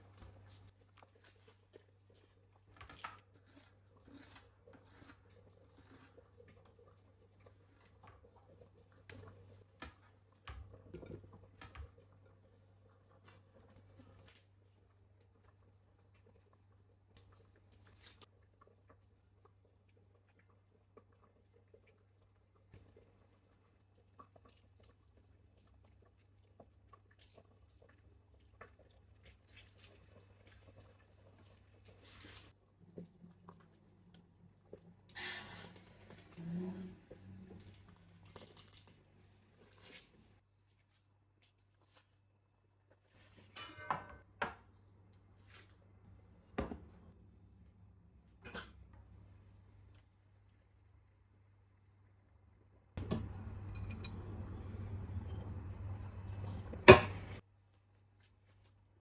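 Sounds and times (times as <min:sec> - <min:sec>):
soft rustles of handling: 0:29.2 - 0:33.8, 0:35.6 - 0:43.6, 0:57.5 - 0:59.0
low steady hum: 0:42.8 - 0:57.4.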